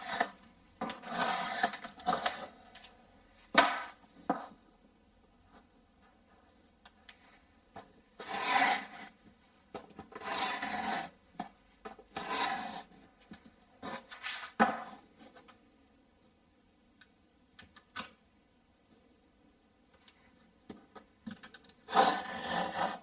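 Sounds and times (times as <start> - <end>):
blade rasping through plasterboard: 0.0 - 2.6, 8.2 - 9.2, 10.1 - 11.2, 12.1 - 12.9, 21.9 - 23.0.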